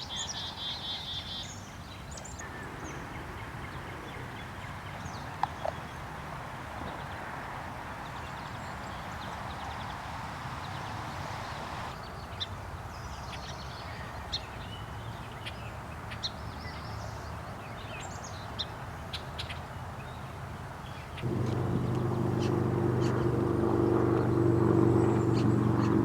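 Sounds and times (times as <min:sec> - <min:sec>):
low hum: 0:21.2 - 0:26.0.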